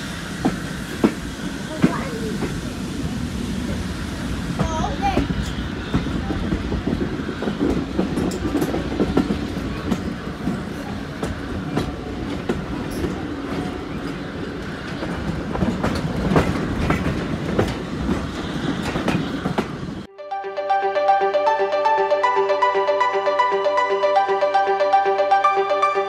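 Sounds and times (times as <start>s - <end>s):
train rumbling along track: 0.0s - 20.1s
wheels clicking over rail joints: 4.6s - 20.1s.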